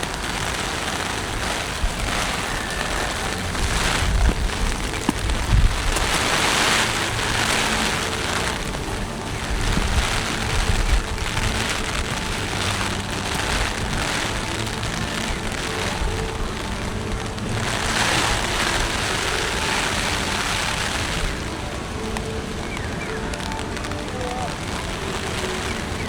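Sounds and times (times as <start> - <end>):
low rumble: 0.0 - 20.6
heavy rain pouring: 0.0 - 26.0.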